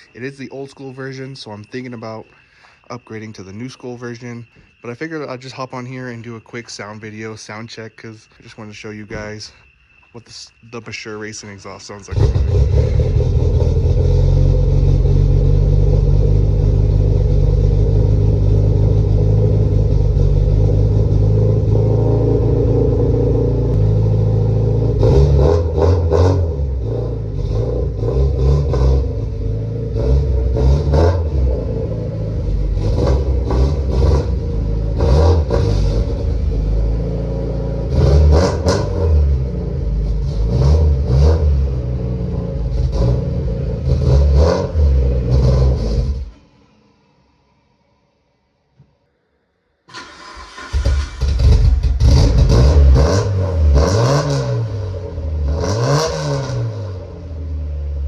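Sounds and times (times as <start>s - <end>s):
car engine idling and revving: 12.1s - 46.4s, 49.9s - 58.0s.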